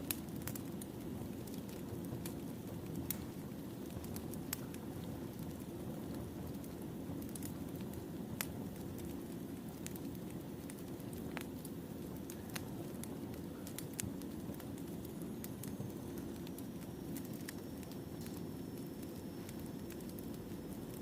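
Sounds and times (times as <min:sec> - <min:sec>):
firewood crackling and popping: 0:00.0 - 0:21.0.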